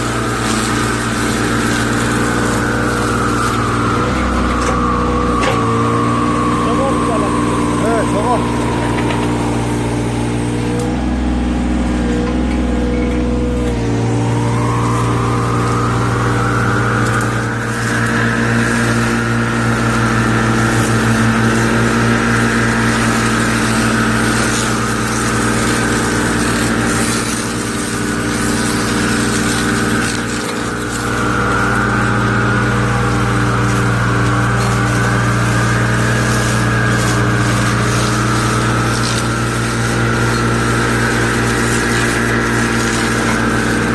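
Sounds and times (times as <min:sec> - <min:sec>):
excavator engine running: 0:00.0 - 0:43.9
high whine: 0:00.0 - 0:43.9.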